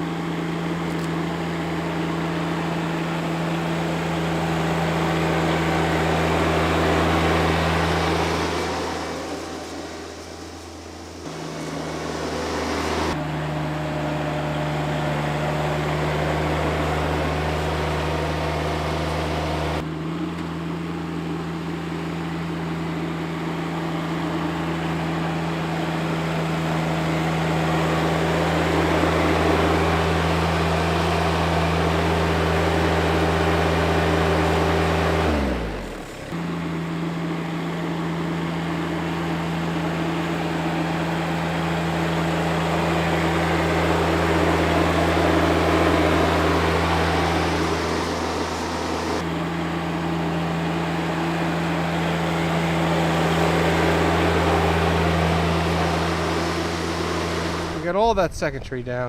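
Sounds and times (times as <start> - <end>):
garden tractor engine running: 0.0 - 59.0.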